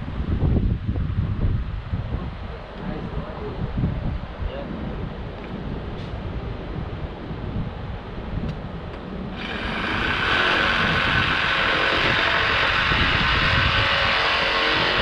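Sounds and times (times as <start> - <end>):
wind on microphone: 0.0 - 15.0
construction machine diesel engine: 9.3 - 15.0
loud harsh machine sound: 9.3 - 15.0.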